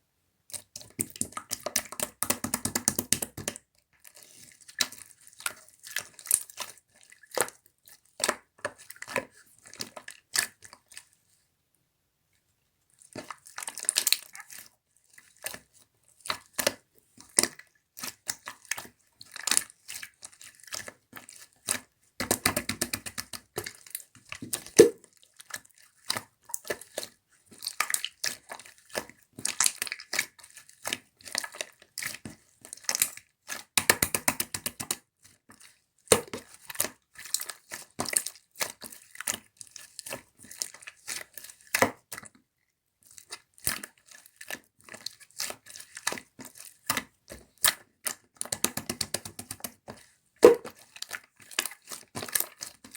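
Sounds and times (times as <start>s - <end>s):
sticky slime clicks and pops: 2.0s - 3.6s.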